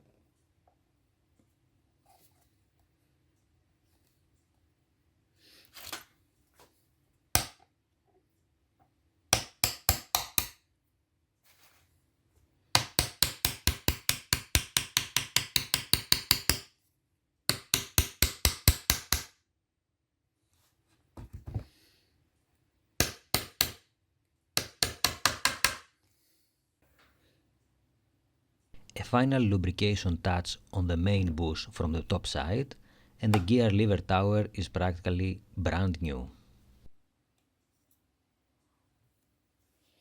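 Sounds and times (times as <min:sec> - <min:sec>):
hammer tapping a pin: 0:07.4 - 0:07.6, 0:09.3 - 0:10.6, 0:12.7 - 0:16.7, 0:17.5 - 0:19.4, 0:23.0 - 0:23.9, 0:24.6 - 0:25.9.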